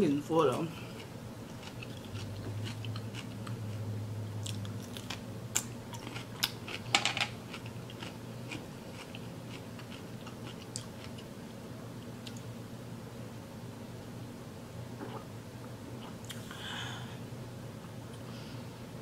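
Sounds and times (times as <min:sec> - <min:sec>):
crunching cucumber: 0:01.0 - 0:03.8, 0:04.4 - 0:06.9.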